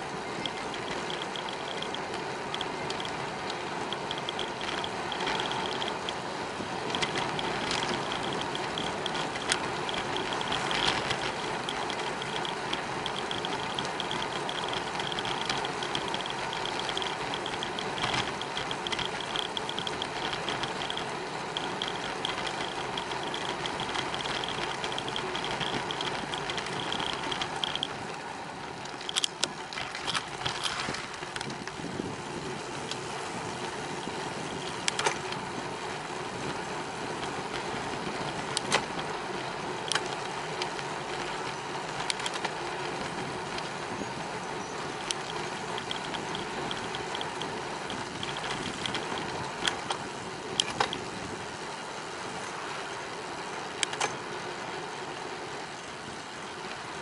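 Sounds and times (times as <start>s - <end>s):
bicycle rolling: 0.0s - 57.0s
wind: 0.0s - 57.0s
sharp clicks and knocks: 0.4s - 6.2s, 6.9s - 28.1s, 28.8s - 31.8s, 34.6s - 35.4s, 37.2s - 39.1s, 39.8s - 43.7s, 45.0s - 51.1s, 53.8s - 54.2s
rhythmic high ticking: 7.3s - 28.0s.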